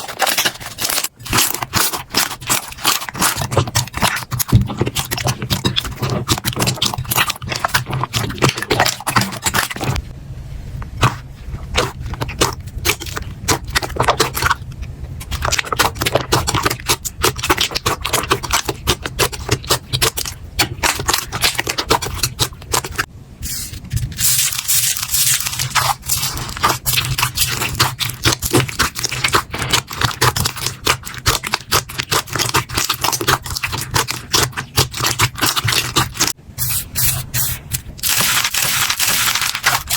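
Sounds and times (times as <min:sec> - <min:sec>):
slime crackling and popping: 0:00.0 - 0:10.0, 0:15.2 - 0:23.1, 0:24.2 - 0:36.4, 0:38.0 - 0:39.9.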